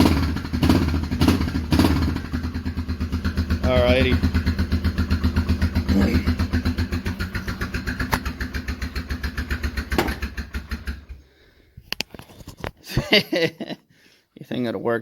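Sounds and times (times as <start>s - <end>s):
atv engine chugging: 0.0s - 11.2s.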